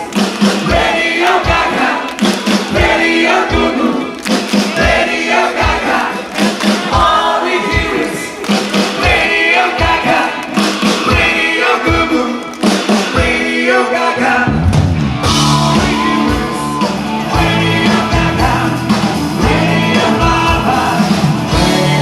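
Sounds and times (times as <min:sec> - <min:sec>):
live rock band playing: 0:00.0 - 0:05.1, 0:05.7 - 0:13.5, 0:14.4 - 0:22.0
person singing: 0:15.2 - 0:22.0.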